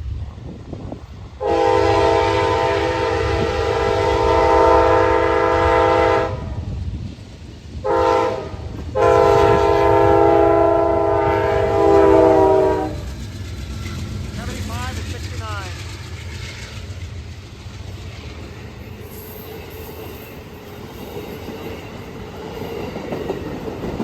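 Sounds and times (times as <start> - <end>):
passing train rumble: 0.0 - 24.0
locomotive air horn blasts: 1.4 - 6.4, 7.8 - 13.0.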